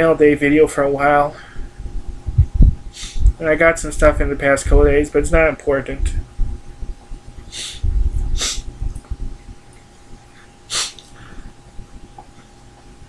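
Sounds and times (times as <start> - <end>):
breathing: 1.3 - 1.9, 2.9 - 3.3, 10.3 - 11.6
man sniffling: 2.9 - 3.3, 7.5 - 8.7, 10.4 - 11.5.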